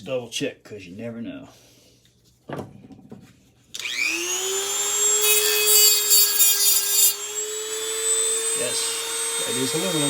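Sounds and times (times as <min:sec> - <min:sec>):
cutting wheel grinding metal: 0:03.8 - 0:10.0
rotary tool whine: 0:03.8 - 0:10.0.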